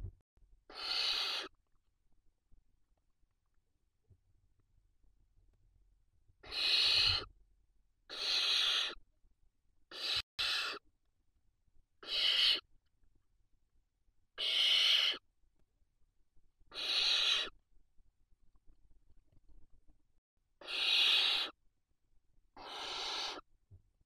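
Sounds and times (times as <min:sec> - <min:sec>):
owl chicks rasping hisses: 0:00.7 - 0:01.5, 0:06.4 - 0:07.3, 0:08.1 - 0:09.0, 0:09.9 - 0:10.8, 0:12.0 - 0:12.7, 0:14.4 - 0:15.2, 0:16.7 - 0:17.6, 0:20.6 - 0:21.6, 0:22.6 - 0:23.5.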